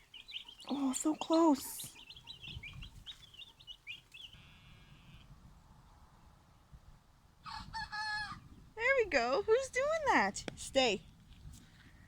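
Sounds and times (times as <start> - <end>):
turkey poults peeping: 0.0 - 5.3.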